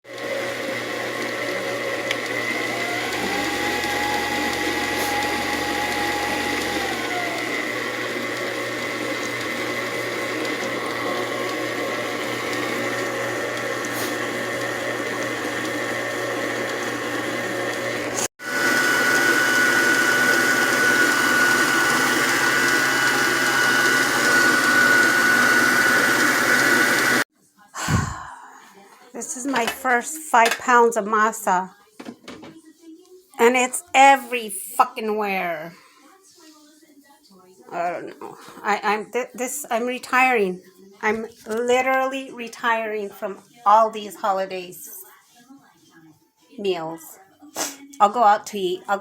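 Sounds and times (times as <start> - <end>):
electric mixer motor whining: 0.1 - 27.3.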